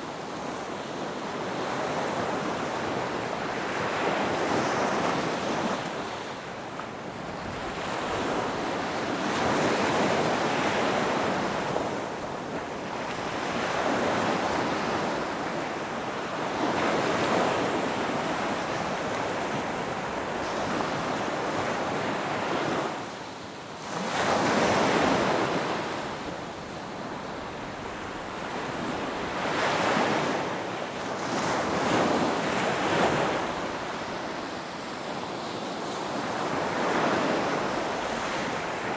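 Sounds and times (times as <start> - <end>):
waves crashing on a beach: 0.0 - 38.9.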